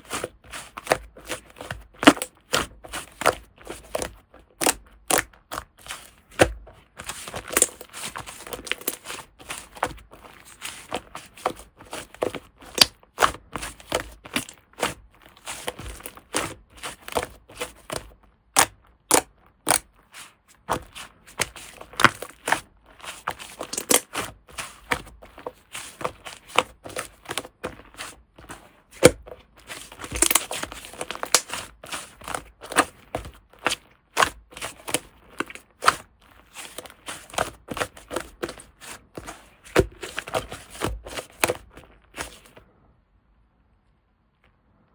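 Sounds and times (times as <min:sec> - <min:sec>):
slime crackling and popping: 0:23.2 - 0:24.2, 0:29.8 - 0:32.9.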